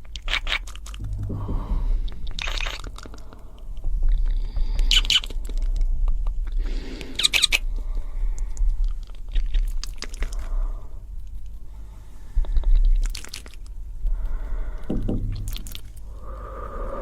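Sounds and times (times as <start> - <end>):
wet mouth clicks and smacks: 0.0 - 1.1, 2.3 - 3.3, 4.2 - 7.7, 8.4 - 10.5, 12.5 - 13.8, 15.4 - 16.1
steady low hum: 0.8 - 17.0.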